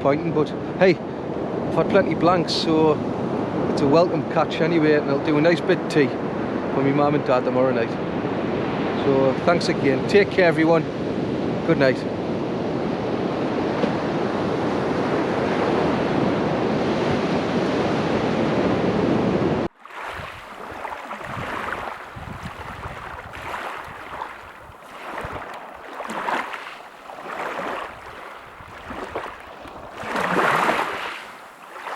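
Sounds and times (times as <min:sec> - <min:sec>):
sea surf: 0:00.5 - 0:31.9
wind buffeting microphone: 0:10.4 - 0:31.9
water washing in: 0:19.8 - 0:31.9.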